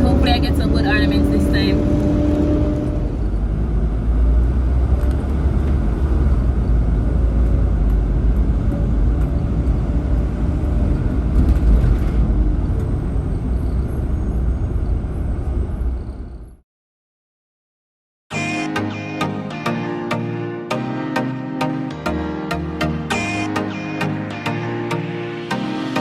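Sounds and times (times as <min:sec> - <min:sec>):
car road and engine rumble: 0:00.0 - 0:16.6.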